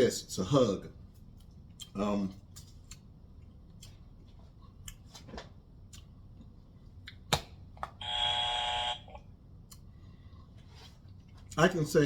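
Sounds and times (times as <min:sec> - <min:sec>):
electronic buzzer tone: 0:08.0 - 0:09.2.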